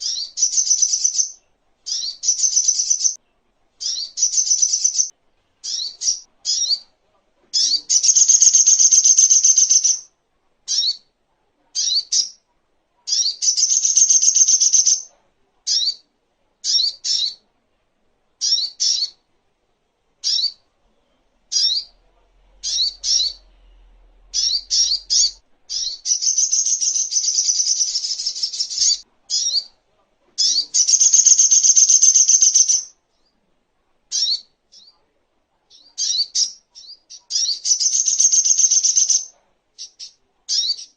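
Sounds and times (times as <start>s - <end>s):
bird sharp high chirps: 0.0s - 3.2s, 3.8s - 6.8s, 7.6s - 10.1s, 13.1s - 15.1s, 18.4s - 19.2s, 21.5s - 22.0s, 22.6s - 29.8s, 30.4s - 32.9s, 35.7s - 40.9s.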